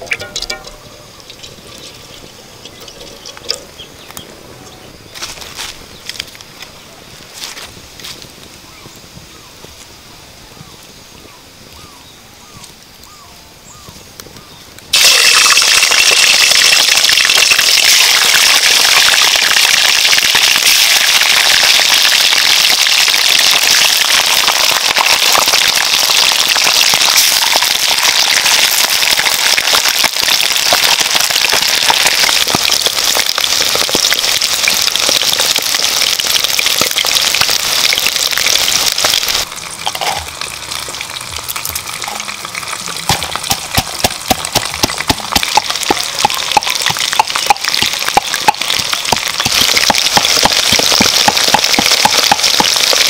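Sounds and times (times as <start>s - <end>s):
food sizzling in hot oil: 14.9s - 53.0s.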